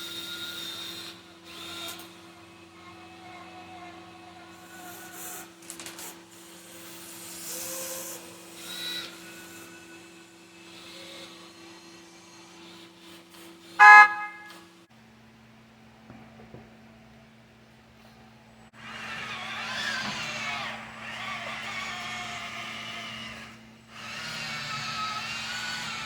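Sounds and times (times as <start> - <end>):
horn toot: 13.8 - 14.6.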